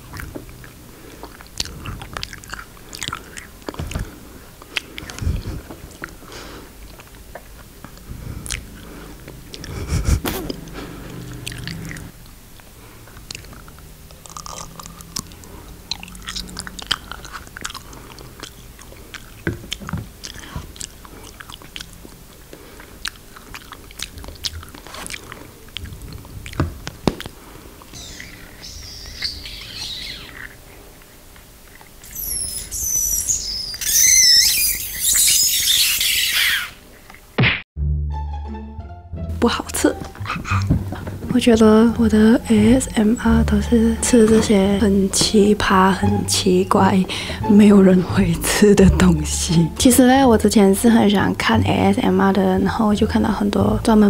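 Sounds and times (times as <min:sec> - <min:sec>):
wet chewing and mouth clicks: 0:00.0 - 0:33.1
high squeaking: 0:27.9 - 0:30.6, 0:32.0 - 0:36.9.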